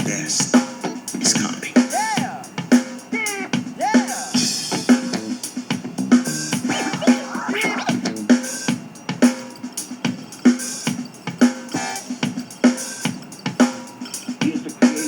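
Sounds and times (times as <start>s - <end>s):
drum music through speaker: 0.0s - 15.0s.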